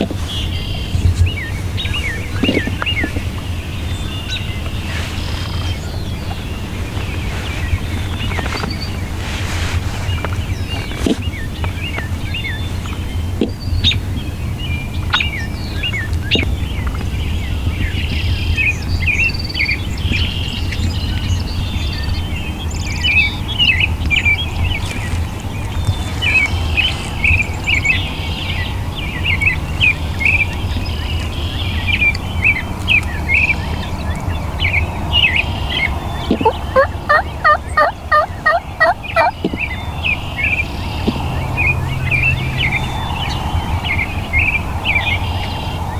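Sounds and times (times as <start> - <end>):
low wind rumble: 0.0 - 45.9
songbirds chirping: 0.0 - 45.9
wild turkey yelping: 36.2 - 39.4.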